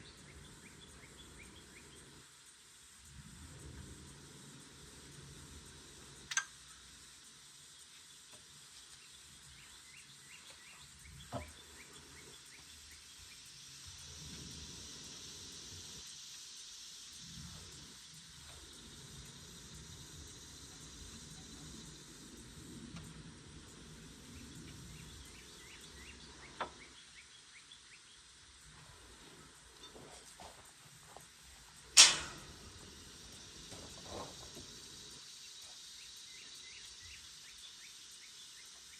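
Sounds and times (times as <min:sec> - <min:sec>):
sharp click: 0:06.3 - 0:06.5, 0:32.0 - 0:32.6
small bird chirping: 0:07.6 - 0:16.0, 0:23.9 - 0:28.3.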